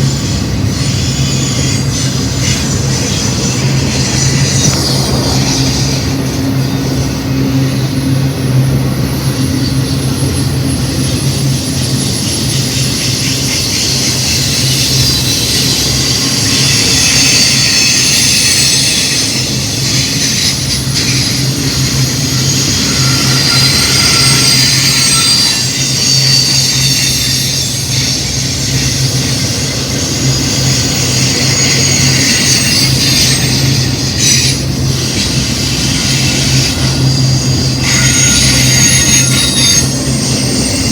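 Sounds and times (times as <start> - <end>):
freight train rumbling: 0.0 - 40.9
wheel squeal: 0.0 - 40.9.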